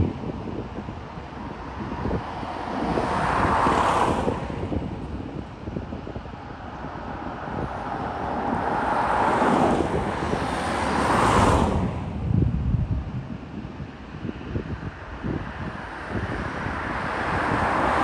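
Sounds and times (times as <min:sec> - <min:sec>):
wind buffeting microphone: 0:00.0 - 0:18.0
jet engines roaring: 0:08.2 - 0:12.3.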